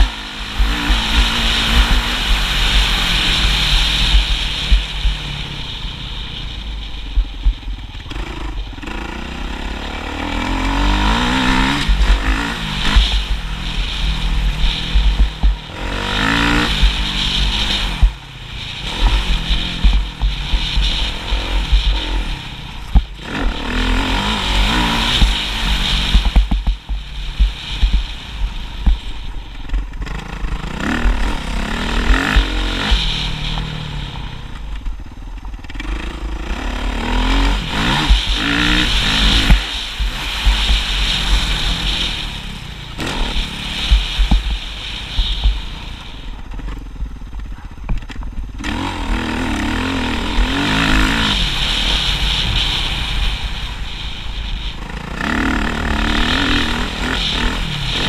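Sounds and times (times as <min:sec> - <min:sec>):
deep rumble: 0:00.0 - 0:58.0
motocross bike engine revving: 0:00.0 - 0:58.0.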